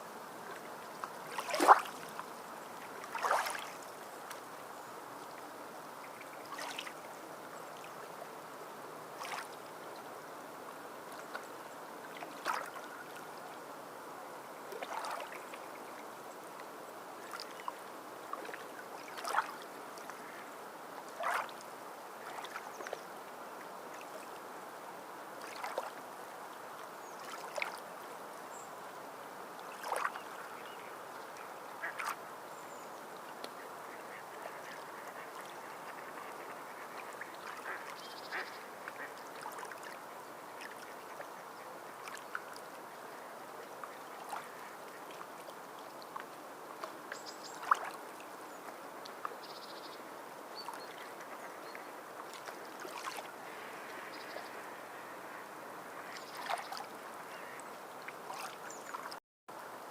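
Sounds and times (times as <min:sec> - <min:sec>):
sea water washing: 0:01.2 - 0:02.2, 0:03.0 - 0:03.8.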